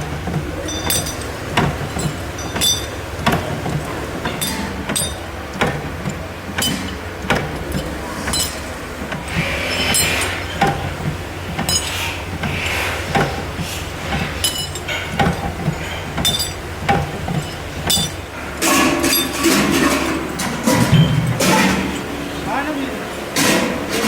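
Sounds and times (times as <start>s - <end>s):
low machinery hum: 0.0s - 24.0s
hammer striking metal: 0.6s - 13.4s.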